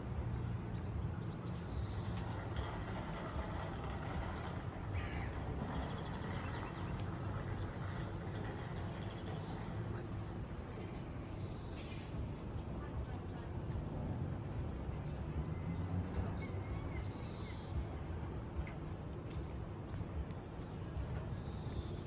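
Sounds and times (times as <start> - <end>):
low engine hum: 0.0 - 11.6
birds calling: 1.5 - 9.8.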